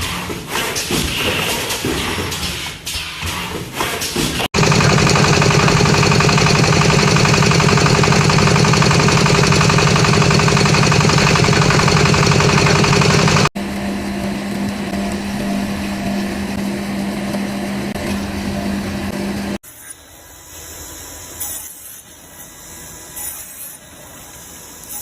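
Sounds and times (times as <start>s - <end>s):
machine running with fast pulsing: 4.6s - 19.6s.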